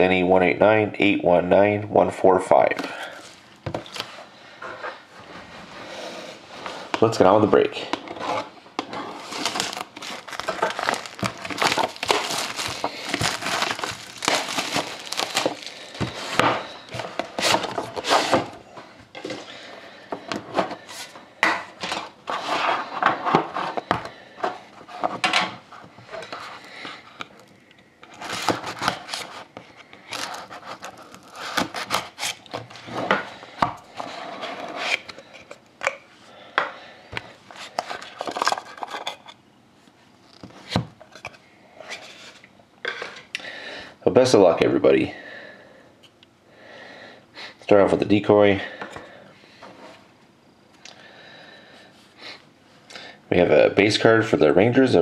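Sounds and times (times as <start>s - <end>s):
plastic wrapping crinkling: 3.0s - 4.1s, 9.0s - 18.4s, 28.1s - 32.8s
cardboard rustling: 8.1s - 18.6s, 28.1s - 33.2s.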